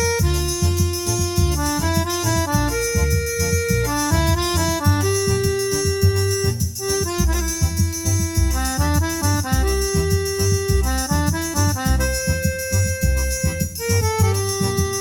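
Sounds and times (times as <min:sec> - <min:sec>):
accordion melody: 0:00.0 - 0:15.0
steady low beat: 0:00.0 - 0:15.0.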